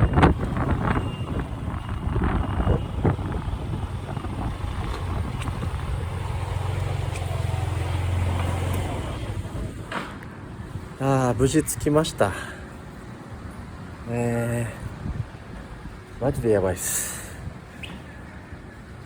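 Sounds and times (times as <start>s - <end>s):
motorcycle engine running: 0.0s - 9.9s
wind buffeting microphone: 0.0s - 14.1s, 14.7s - 19.0s.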